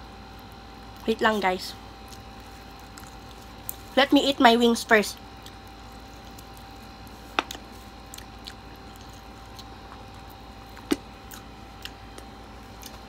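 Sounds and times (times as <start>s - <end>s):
person chewing chicken wings: 2.0s - 3.9s, 5.2s - 13.0s.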